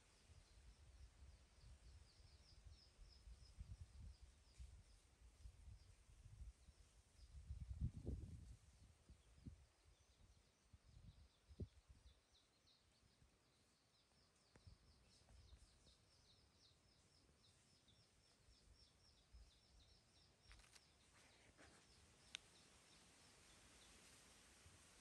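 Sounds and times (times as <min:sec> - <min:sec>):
soft clicks: 0:22.2 - 0:22.6.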